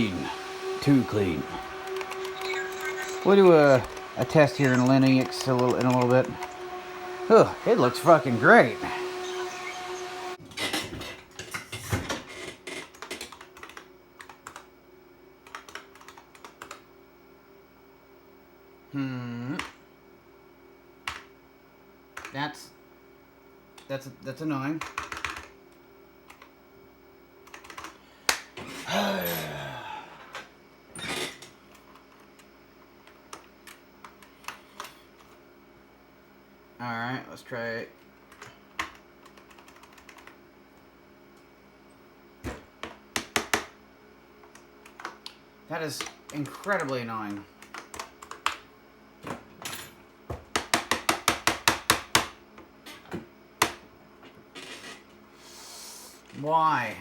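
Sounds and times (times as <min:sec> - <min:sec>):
keyboard keys clicking: 0:01.8 - 0:06.6
keyboard key clicking: 0:04.6 - 0:06.5.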